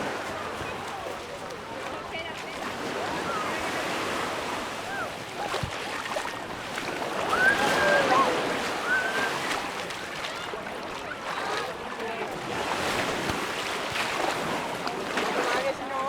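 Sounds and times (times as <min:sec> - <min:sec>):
people's voices: 0:00.0 - 0:13.7
surf washing: 0:00.0 - 0:16.0
people calling out: 0:07.2 - 0:09.6.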